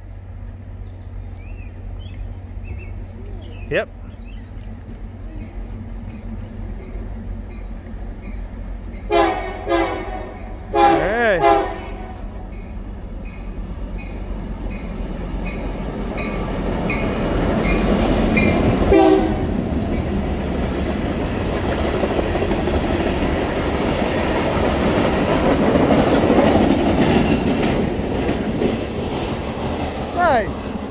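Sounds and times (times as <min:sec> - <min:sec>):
diesel locomotive engines running: 0:00.0 - 0:30.9
wheels clacking over rail joints: 0:00.6 - 0:30.9
short train horn toot: 0:09.1 - 0:12.2, 0:18.9 - 0:19.6.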